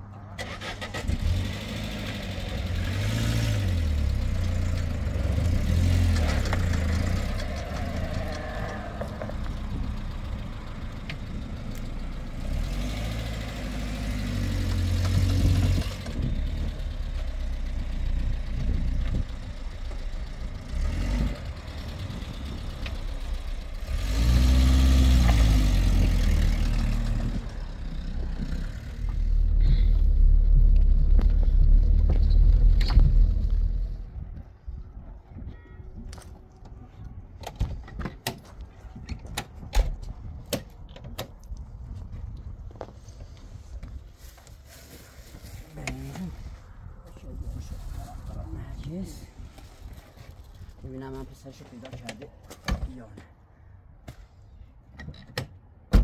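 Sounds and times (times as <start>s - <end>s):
tires on gravel: 0.2s - 34.8s, 37.7s - 53.3s
car engine starting and revving: 0.3s - 34.0s.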